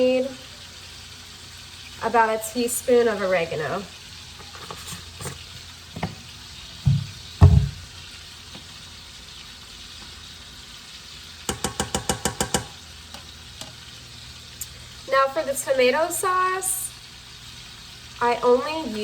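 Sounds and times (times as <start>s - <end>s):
faint sizzle: 0.0s - 19.0s
dull knocks: 6.9s - 7.9s.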